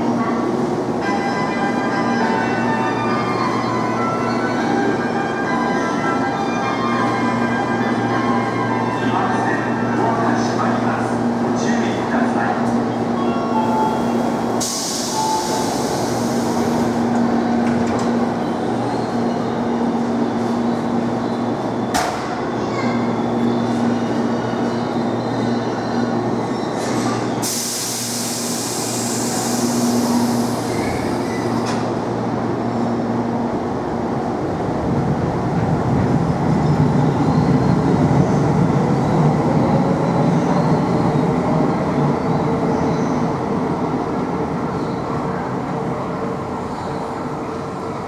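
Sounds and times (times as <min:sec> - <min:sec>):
electric train hum: 0:00.0 - 0:48.0
train wheels and motors rumbling: 0:10.3 - 0:48.0
air hiss: 0:14.6 - 0:16.9, 0:27.4 - 0:31.4.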